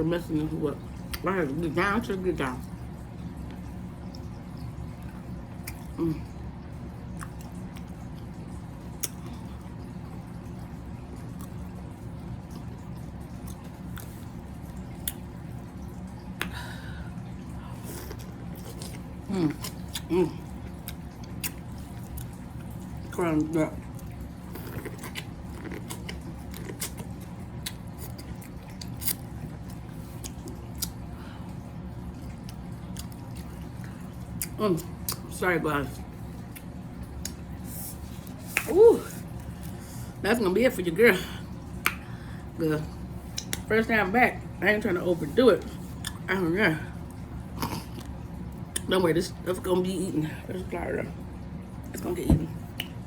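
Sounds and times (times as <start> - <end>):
steady low hum: 0.0 - 53.0
wet mouth eating sounds: 3.4 - 10.2, 11.1 - 40.2, 41.1 - 43.7, 45.6 - 46.3, 46.9 - 48.9, 51.9 - 53.0
chewing: 3.5 - 6.3, 7.1 - 8.3, 11.1 - 11.8, 12.5 - 15.3, 17.4 - 40.1, 43.2 - 43.7, 45.6 - 46.3, 47.1 - 48.9.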